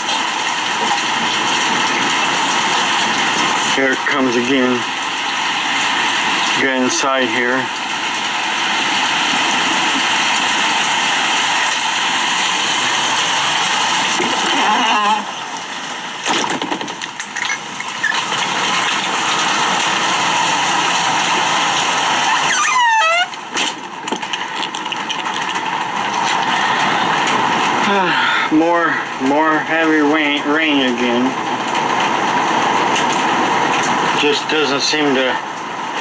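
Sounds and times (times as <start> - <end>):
heavy rain pouring: 0.0 - 36.0
wind: 0.0 - 36.0
brief squeaks: 22.3 - 23.4.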